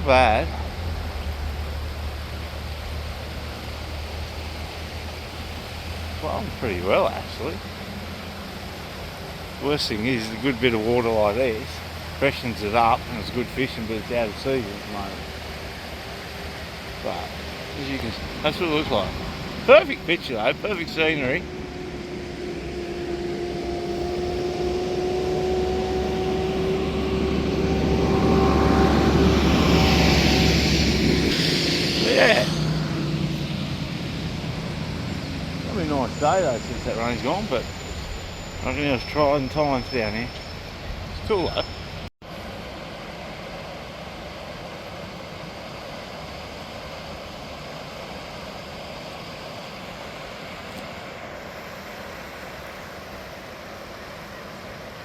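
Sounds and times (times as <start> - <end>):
approaching engine drone: 0.0 - 55.0
rush of noise: 0.0 - 55.0.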